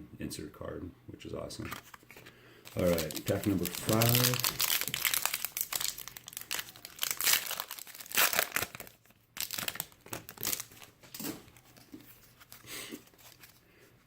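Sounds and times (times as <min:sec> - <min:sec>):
plastic wrapper tearing and crinkling: 0:01.7 - 0:13.6.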